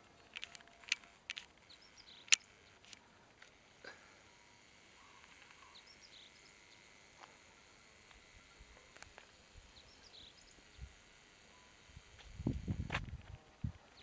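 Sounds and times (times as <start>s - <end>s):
soft bird chirps: 1.6s - 2.9s, 4.2s - 9.0s, 9.7s - 12.0s.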